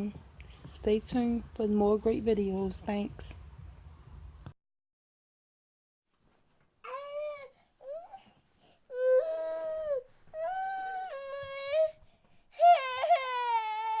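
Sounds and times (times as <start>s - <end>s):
infant-like crying and wailing: 12.6s - 14.0s.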